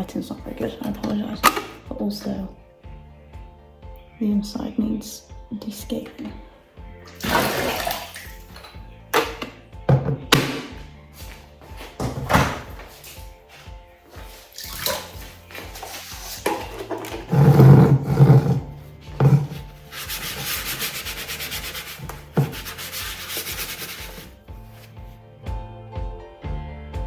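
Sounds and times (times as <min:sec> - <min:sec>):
soft background music: 0:00.0 - 0:27.0
scrubbing a kettle: 0:13.0 - 0:25.1.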